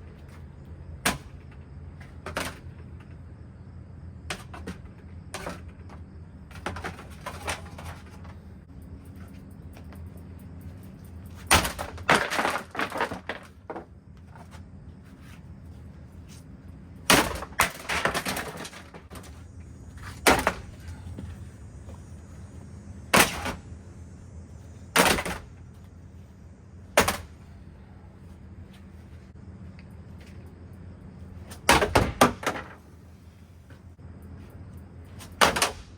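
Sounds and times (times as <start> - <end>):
steady low hum: 0.0 - 35.9
ceiling fan crashing and cracking: 11.3 - 13.8, 17.0 - 19.3, 20.2 - 21.3, 31.5 - 32.8, 35.2 - 35.9.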